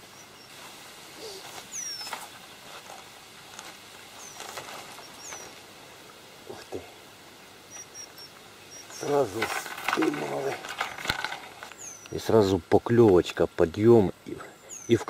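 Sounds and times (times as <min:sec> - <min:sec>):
small birds chirping: 0:00.0 - 0:15.0
faint high peeps: 0:01.2 - 0:02.2, 0:07.7 - 0:09.2.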